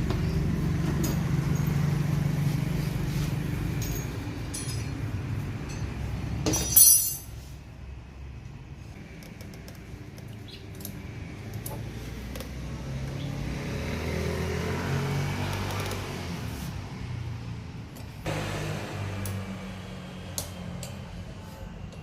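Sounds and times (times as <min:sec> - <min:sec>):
tools clinking on metal: 0:03.8 - 0:07.4
low hum: 0:18.3 - 0:21.0
motorcycle engine running: 0:18.3 - 0:21.0.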